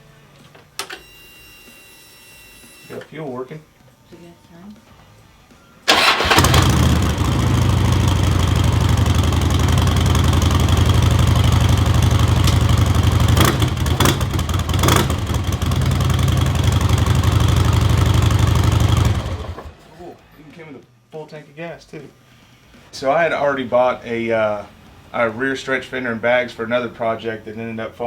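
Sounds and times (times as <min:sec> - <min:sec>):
motorcycle engine starting and idling: 0:05.9 - 0:19.8.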